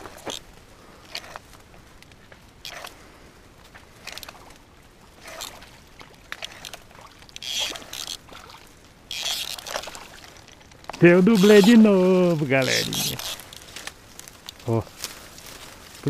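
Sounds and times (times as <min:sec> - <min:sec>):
fish splashing at water surface: 0:05.1 - 0:10.6.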